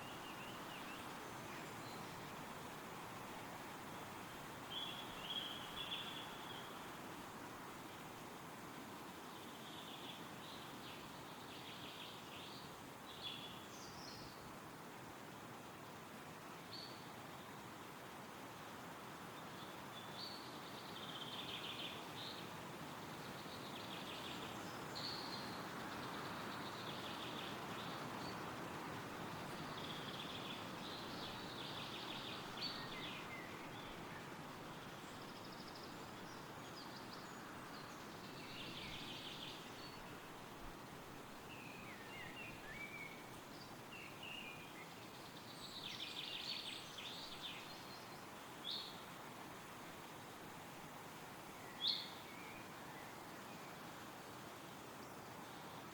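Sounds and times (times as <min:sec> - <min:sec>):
songbirds singing trills: 0:00.0 - 0:02.4, 0:04.6 - 0:06.9, 0:19.4 - 0:49.2, 0:51.5 - 0:53.9
wind rustling through trees: 0:00.0 - 0:55.9.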